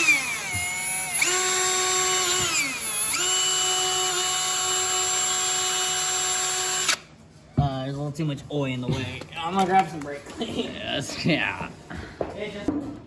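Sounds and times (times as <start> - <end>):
power drill drilling into metal: 0.0 - 7.0.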